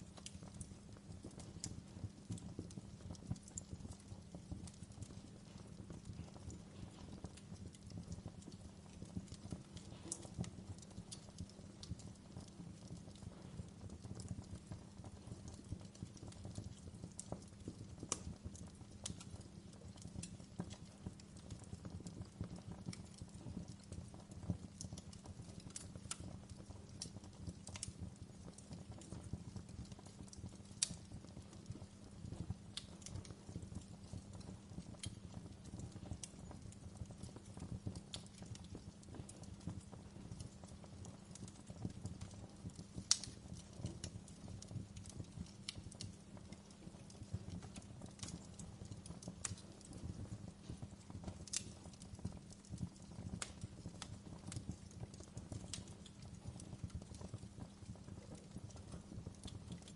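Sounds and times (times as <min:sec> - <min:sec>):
wood fire crackling: 0:00.0 - 0:59.9
loud fire pops: 0:00.1 - 0:11.9, 0:12.5 - 0:57.2.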